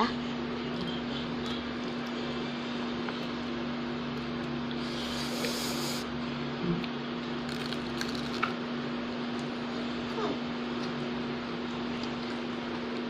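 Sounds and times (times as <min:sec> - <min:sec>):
steady low hum: 0:00.0 - 0:13.0
crisp chewing and mouth sounds: 0:00.6 - 0:02.4, 0:06.7 - 0:08.6, 0:11.8 - 0:13.0.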